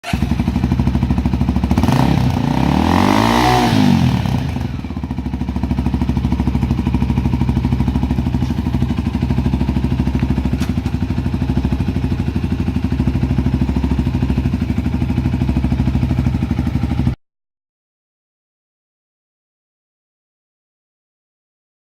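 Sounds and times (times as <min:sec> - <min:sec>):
motorcycle engine revving and idling: 0:00.0 - 0:17.2.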